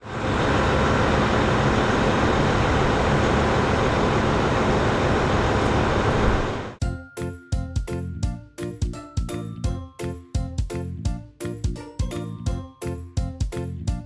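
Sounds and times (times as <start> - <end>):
vehicle running noise: 0.0 - 6.8.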